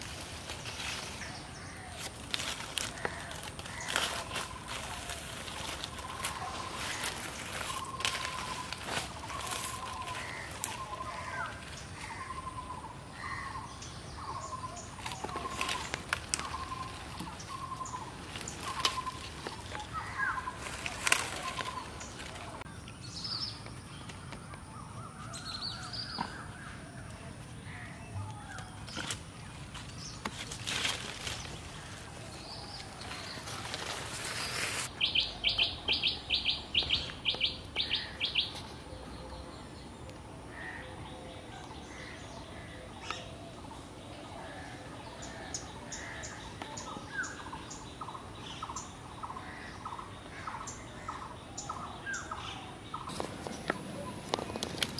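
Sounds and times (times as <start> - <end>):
bird calling: 0.6 - 39.8.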